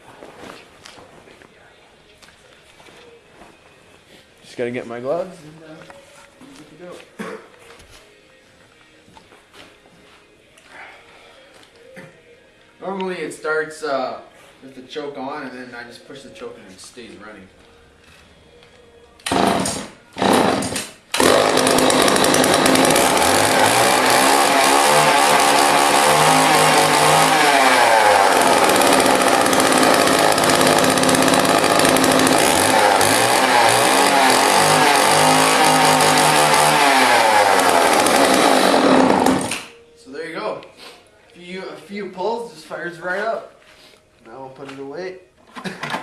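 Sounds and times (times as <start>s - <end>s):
chainsaw starting and running: 19.2s - 39.7s.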